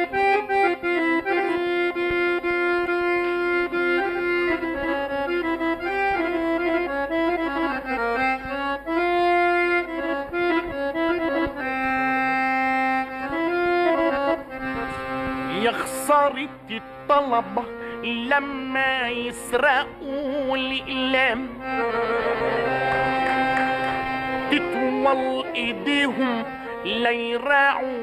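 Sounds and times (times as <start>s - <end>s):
accordion melody: 0.0s - 28.0s
person singing: 15.5s - 23.5s, 24.4s - 28.0s.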